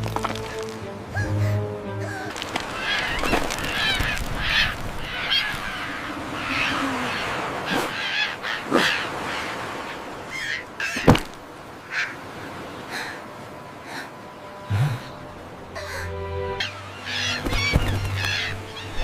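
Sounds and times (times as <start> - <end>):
bird honking calls: 11.8 - 19.0.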